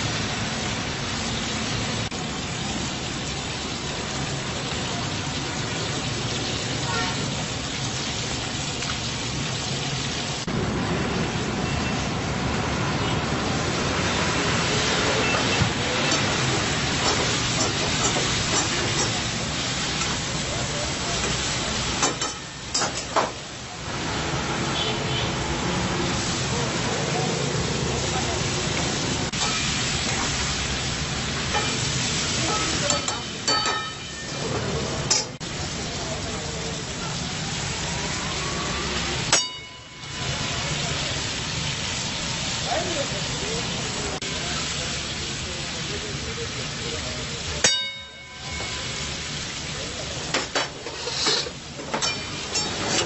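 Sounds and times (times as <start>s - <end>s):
chicken sizzling in hot oil: 0.0s - 53.0s
metal spatula clinking on wok: 32.5s - 34.4s, 39.3s - 40.2s, 51.9s - 52.9s
metal spatula scraping a pan: 50.8s - 53.0s.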